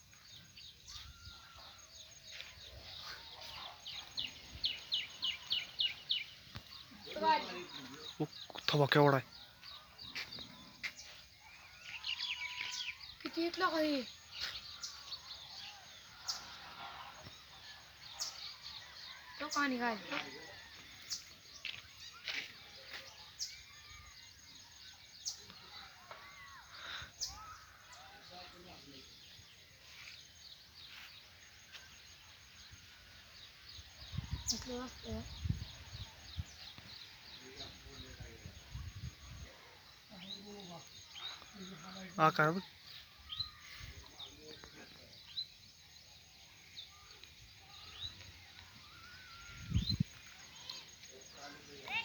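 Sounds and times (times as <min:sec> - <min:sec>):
soft rising and falling bird calls: 0:00.0 - 0:13.4, 0:42.6 - 0:52.0
flock of birds chirping: 0:00.0 - 0:52.0
outdoor background noise: 0:00.0 - 0:52.0.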